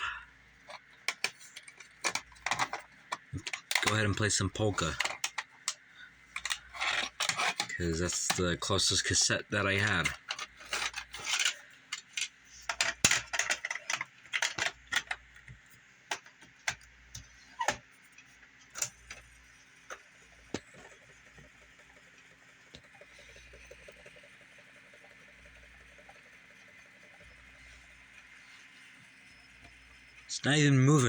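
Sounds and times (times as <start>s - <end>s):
plastic clicks of cassette loading: 0.6s - 8.5s, 9.8s - 17.8s.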